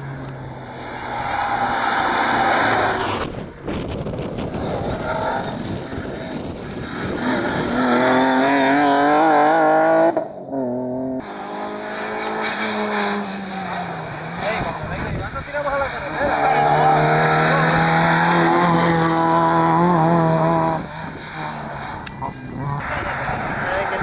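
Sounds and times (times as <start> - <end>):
rally car engine revving: 0.0 - 24.0
gear changes: 11.2 - 24.0
tyre squeal: 15.8 - 19.2.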